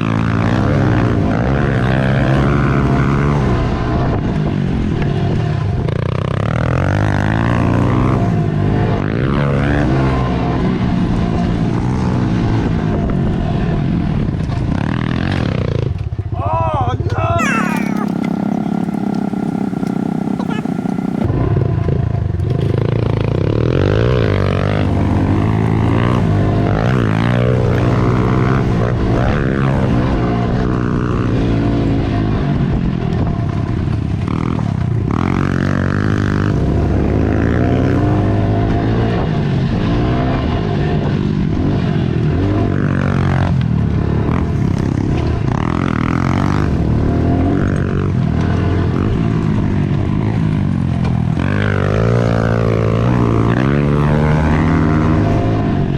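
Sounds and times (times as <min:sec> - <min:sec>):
pit bike engines revving: 0:17.2 - 0:21.5, 0:41.8 - 0:55.9.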